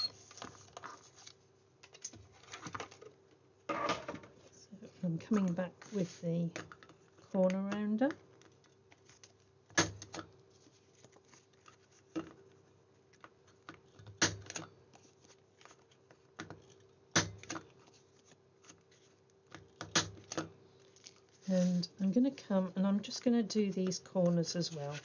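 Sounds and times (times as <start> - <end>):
paper rustling: 0.2 - 3.1, 10.5 - 12.1, 14.9 - 16.8.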